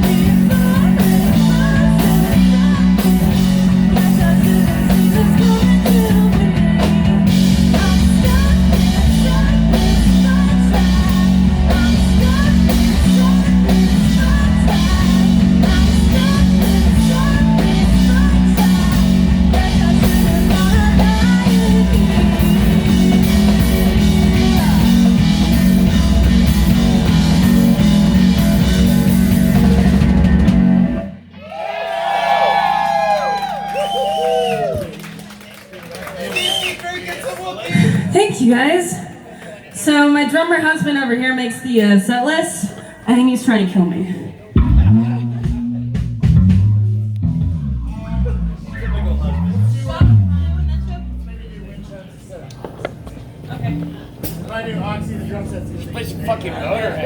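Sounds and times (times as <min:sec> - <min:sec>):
live rock band playing: 0:00.0 - 0:31.4, 0:32.4 - 0:36.4, 0:44.5 - 0:51.8, 0:53.3 - 0:57.0
audience cheering and whistling: 0:31.3 - 0:37.1.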